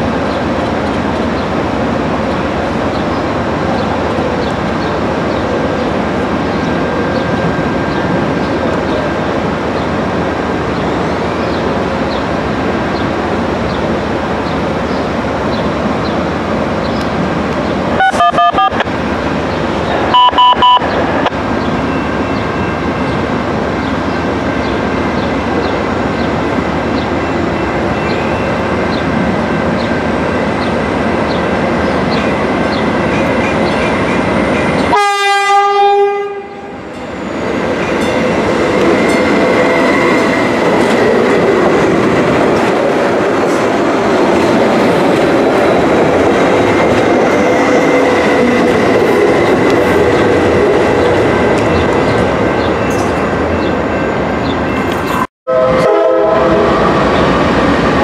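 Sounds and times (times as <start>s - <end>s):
train rumbling: 0.0s - 58.0s
short choppy train horn: 55.5s - 57.0s.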